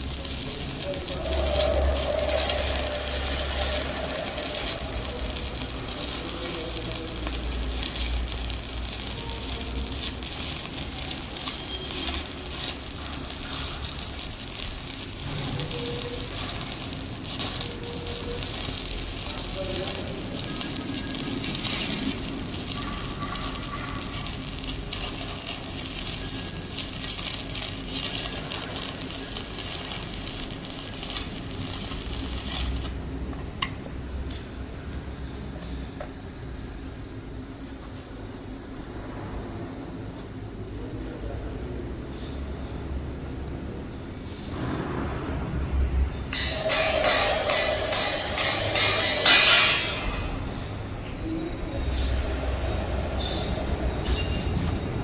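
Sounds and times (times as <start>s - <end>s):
welding arc crackling: 0.0s - 35.1s, 46.3s - 50.7s.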